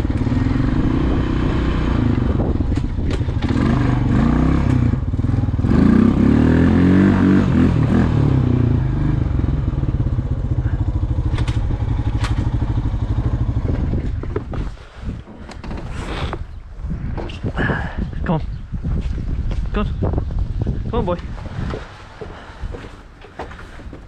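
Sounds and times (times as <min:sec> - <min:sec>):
atv engine under load: 0:00.0 - 0:16.5.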